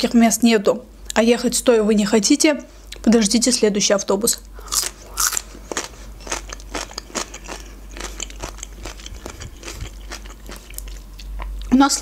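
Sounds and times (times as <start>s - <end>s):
chewing cucumber wet crunches: 4.7s - 11.7s.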